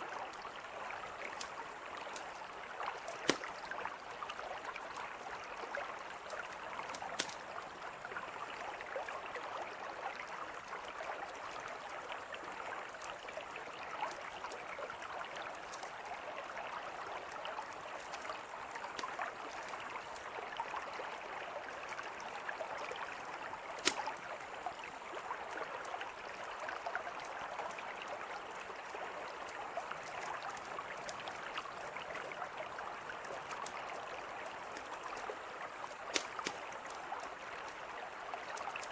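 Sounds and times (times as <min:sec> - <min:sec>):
river flowing: 0:00.0 - 0:38.9
campfire crackling and popping: 0:01.2 - 0:03.7, 0:06.2 - 0:07.6, 0:18.0 - 0:20.3, 0:23.7 - 0:24.2, 0:34.7 - 0:37.8.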